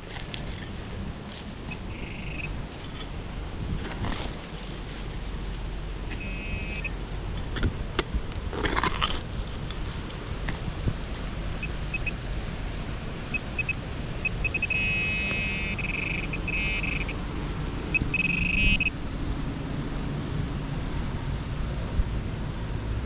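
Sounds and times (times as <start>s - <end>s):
wind rumble on microphone: 0.0s - 23.0s
metal detector beeping: 1.7s - 2.6s, 6.1s - 7.0s, 11.6s - 12.2s, 13.3s - 17.2s, 17.9s - 18.9s.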